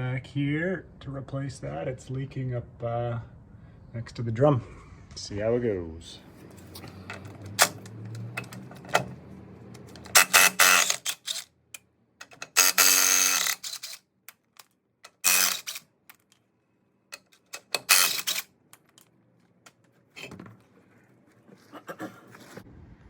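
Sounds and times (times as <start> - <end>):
impact wrench bursts: 9.8 - 11.5, 12.2 - 14.0, 15.1 - 15.8, 17.2 - 18.5.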